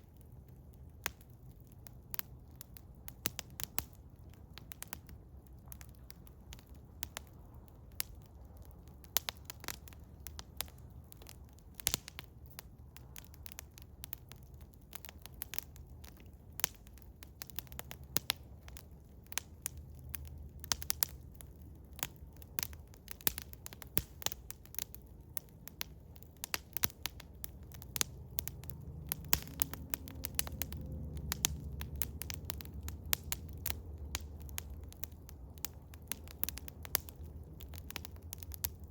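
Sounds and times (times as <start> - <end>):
wood fire crackling and popping: 0.0 - 38.9
low rumble: 28.2 - 35.5.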